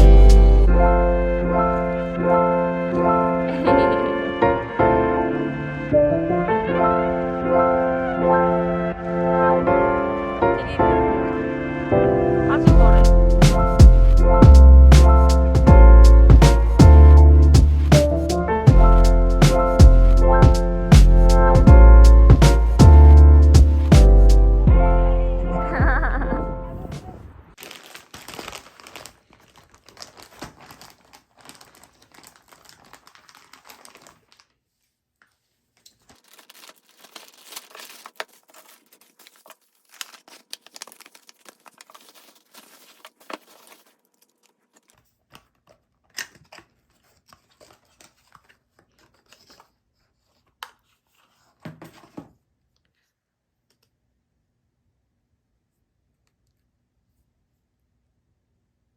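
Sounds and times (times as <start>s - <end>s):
packaging tearing: 27.6s - 34.6s, 35.8s - 51.6s
packaging crinkling and rustling: 27.6s - 52.4s.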